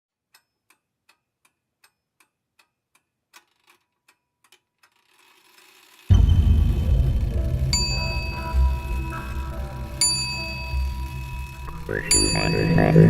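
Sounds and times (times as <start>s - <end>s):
clock-like ticking: 8.0s - 13.0s.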